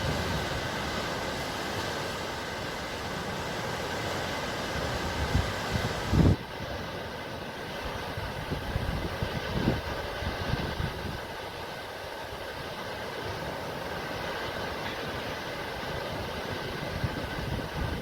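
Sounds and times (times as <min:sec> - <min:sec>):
sea waves hissing: 0:00.0 - 0:06.8.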